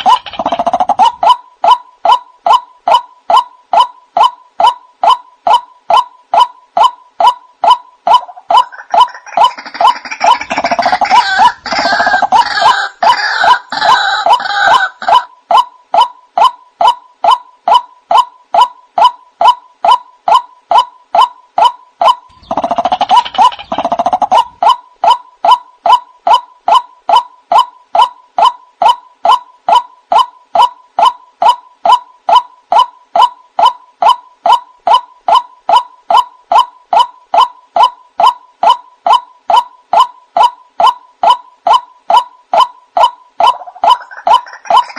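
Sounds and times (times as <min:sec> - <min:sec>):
bird repeating nasal calls: 0:00.0 - 0:15.3, 0:19.9 - 0:25.6, 0:40.8 - 0:44.9
overlapping bird calls: 0:00.0 - 0:44.9.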